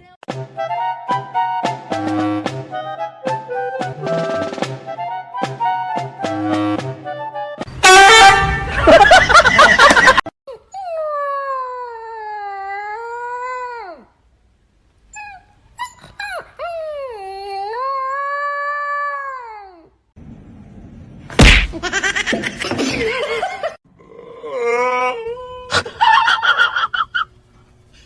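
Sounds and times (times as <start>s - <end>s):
loud sharp thump: 21.3s - 21.8s.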